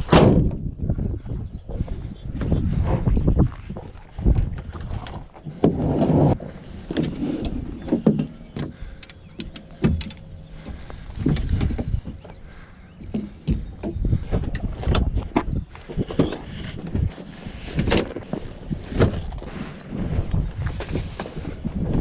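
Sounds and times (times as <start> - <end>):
knocks thumps and clatter: 7.8 - 12.4, 13.0 - 19.4.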